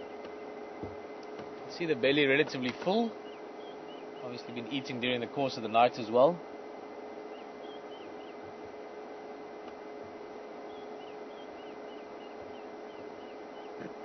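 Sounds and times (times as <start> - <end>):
steady hum and hiss: 0.0 - 14.0
bird calling in quick notes: 2.0 - 6.1, 7.2 - 8.6, 10.4 - 14.0.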